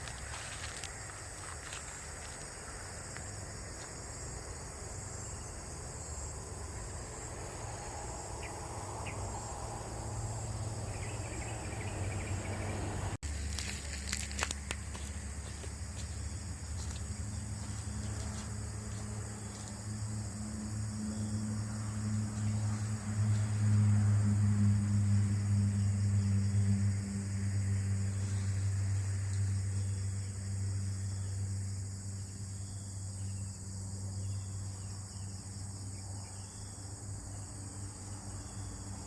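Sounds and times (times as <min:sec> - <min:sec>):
high-pitched insect chorus: 0:00.0 - 0:39.0
low steady hum: 0:00.0 - 0:39.0.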